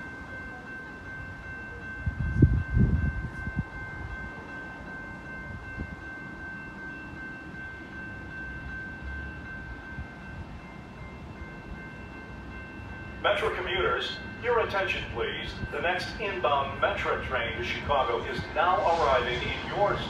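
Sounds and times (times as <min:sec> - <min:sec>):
wind gusts on microphone: 0:01.9 - 0:04.4, 0:15.0 - 0:20.0.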